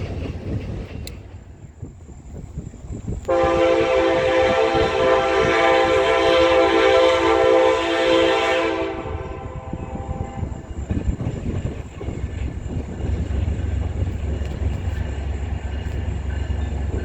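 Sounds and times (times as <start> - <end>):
low train rumble: 0.0 - 17.0
train horn blast: 3.3 - 10.6.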